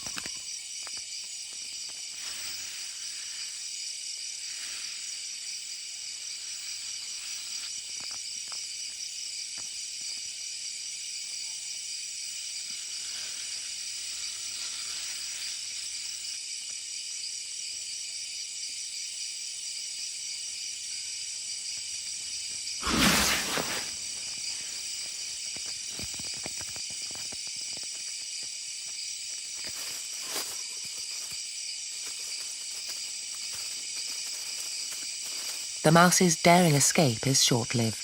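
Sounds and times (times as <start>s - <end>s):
night insects chorus: 0.0s - 38.0s
faint rustles and ticks: 25.0s - 35.9s.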